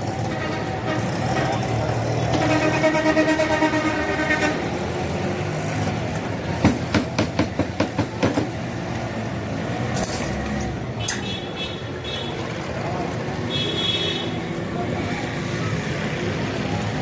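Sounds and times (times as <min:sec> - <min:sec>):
road traffic noise: 0:00.0 - 0:17.0
vehicle horn: 0:00.2 - 0:04.8.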